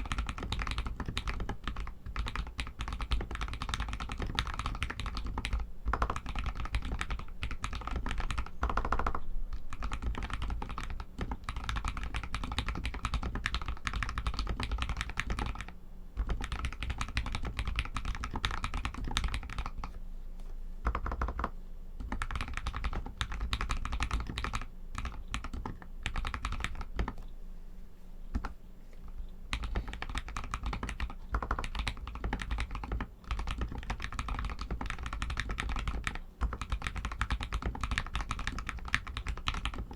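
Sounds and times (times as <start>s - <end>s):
mechanical keyboard typing: 0.0s - 20.0s, 20.8s - 27.2s, 29.5s - 39.9s.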